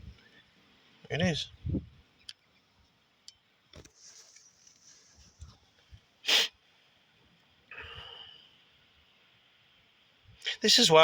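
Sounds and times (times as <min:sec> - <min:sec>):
sneeze-like burst of breath: 0:06.2 - 0:06.6.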